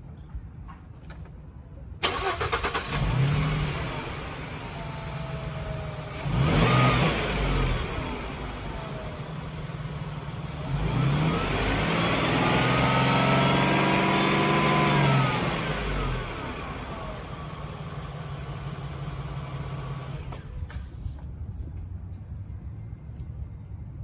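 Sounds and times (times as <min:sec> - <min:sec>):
van engine revving and idling: 0:02.0 - 0:21.2
van engine cranking: 0:02.0 - 0:21.4.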